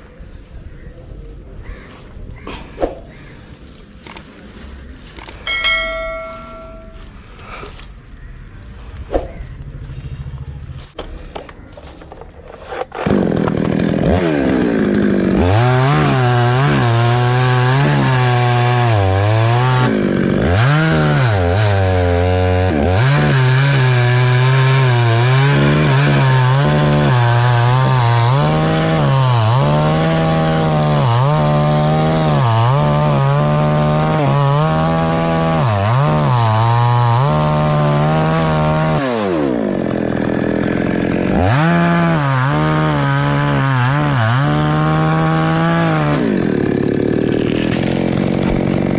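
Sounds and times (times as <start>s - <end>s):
chainsaw cutting wood: 12.5s - 48.9s.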